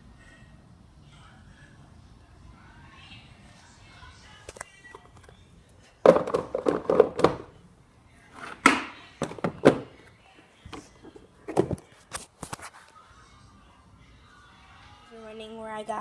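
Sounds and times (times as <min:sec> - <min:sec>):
objects thunking and knocking: 0:06.0 - 0:07.5, 0:08.4 - 0:10.0, 0:10.7 - 0:11.8.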